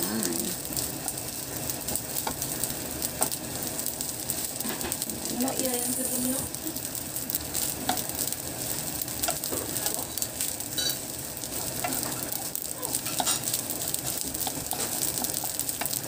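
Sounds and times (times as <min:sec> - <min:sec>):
rice sizzling in a frying pan: 0:00.0 - 0:16.0
spatula scraping a pan: 0:10.7 - 0:12.3, 0:13.0 - 0:16.0.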